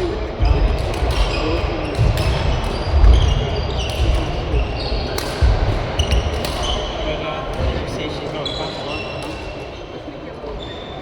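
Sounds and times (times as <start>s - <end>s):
shoes squeaking on court floor: 0.0s - 7.0s, 8.1s - 11.0s
racket hitting shuttlecock: 0.4s - 6.9s.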